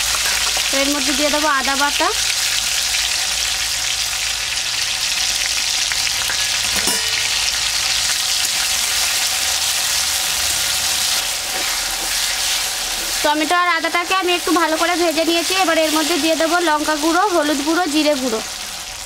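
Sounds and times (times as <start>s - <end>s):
food sizzling in hot oil: 0.0s - 19.0s
short metal clink: 6.3s - 7.5s
metal spatula stirring: 6.3s - 7.6s, 11.2s - 13.3s.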